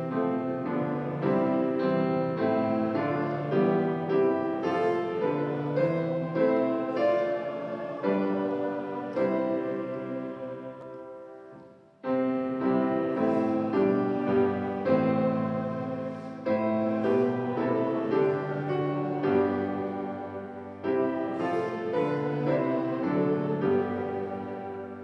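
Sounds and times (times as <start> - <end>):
piano playing hymn chords: 0.0 - 25.0.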